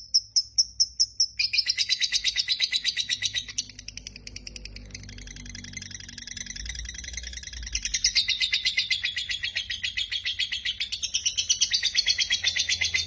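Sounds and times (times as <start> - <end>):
lovebird chattering trill: 0.0 - 13.0.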